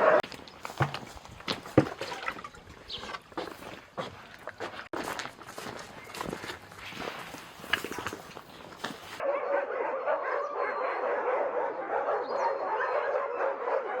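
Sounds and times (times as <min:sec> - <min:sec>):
dogs barking and yelping: 0:00.0 - 0:00.2, 0:09.2 - 0:14.0.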